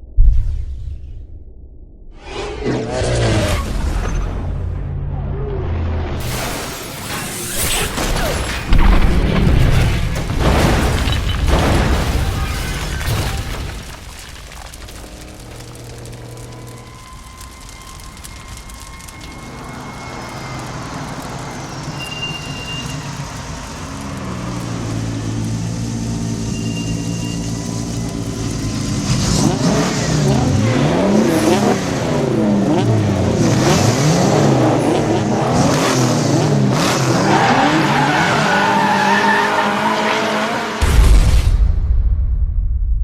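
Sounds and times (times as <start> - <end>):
tyres squealing: 14.7 - 28.6
car engines revving: 15.1 - 40.8.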